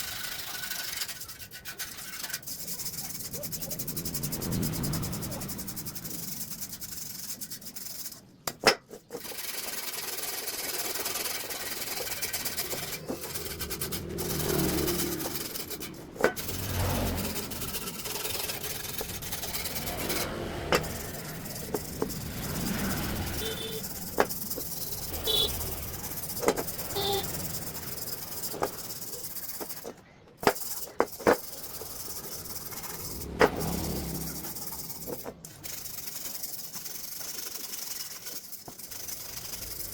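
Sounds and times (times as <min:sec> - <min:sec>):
sharp clicks and light knocks: 0:08.4 - 0:09.2.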